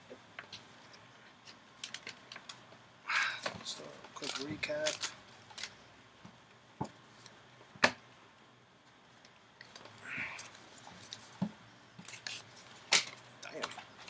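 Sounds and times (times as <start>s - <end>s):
card rustle: 3.5s - 5.8s.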